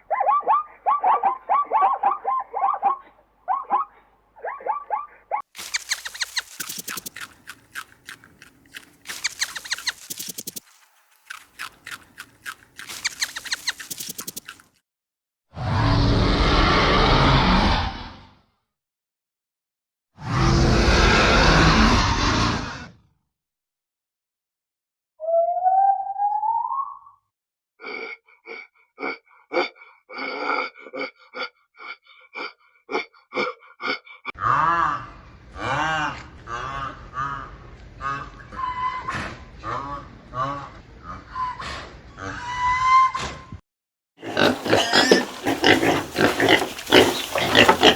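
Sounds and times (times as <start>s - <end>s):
small animal squeaking: 5.6s - 14.7s, 44.3s - 47.9s.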